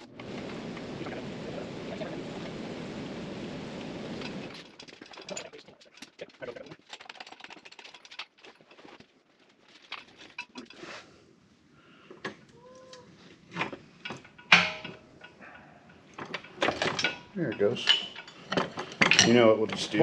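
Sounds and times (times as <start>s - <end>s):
steady rushing noise: 0.0s - 4.6s
tools and metal parts clicking: 4.4s - 9.1s, 13.6s - 20.0s.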